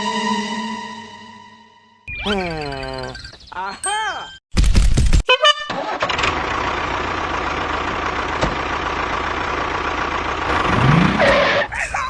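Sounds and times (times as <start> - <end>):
vehicle engine running: 6.2 - 11.8.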